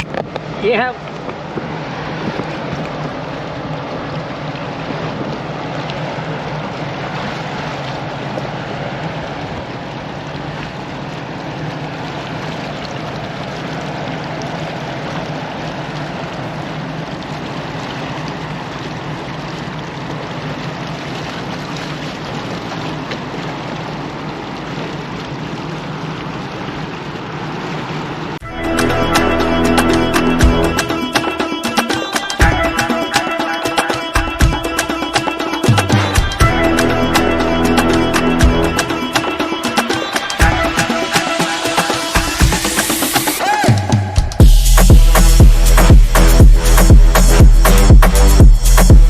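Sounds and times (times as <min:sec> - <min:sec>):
rushing water: 0:00.0 - 0:49.0
boat engines droning: 0:27.0 - 0:31.7, 0:32.4 - 0:44.3.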